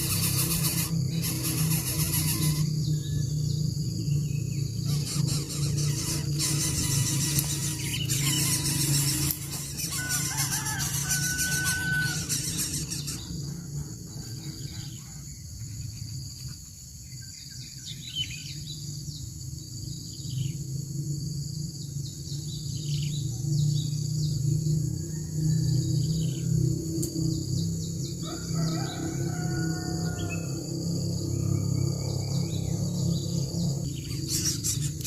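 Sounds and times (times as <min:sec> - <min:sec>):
birds chirping: 0:00.0 - 0:20.6, 0:27.2 - 0:35.0
high insect-like hiss: 0:00.0 - 0:35.0
low drone: 0:00.0 - 0:35.0
bird whistle: 0:04.9 - 0:13.4.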